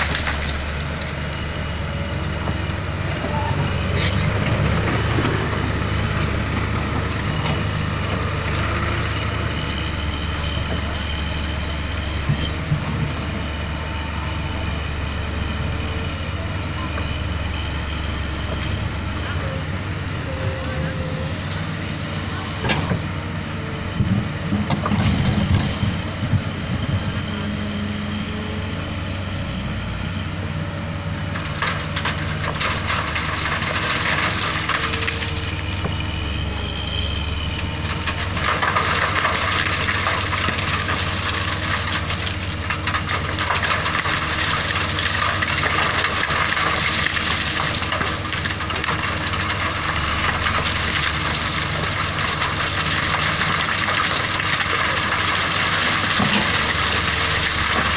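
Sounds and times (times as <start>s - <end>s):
excavator diesel engine running: 0.0s - 57.9s.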